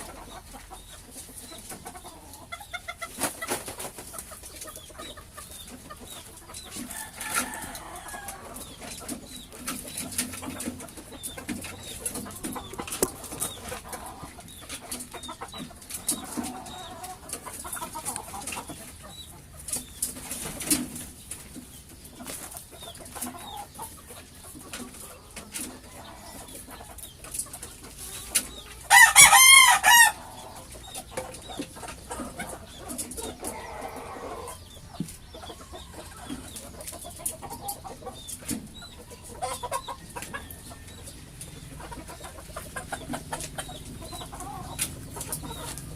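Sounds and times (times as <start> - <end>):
chickens clucking: 0.0 - 45.9
rooster crowing: 6.9 - 8.5, 28.9 - 30.2.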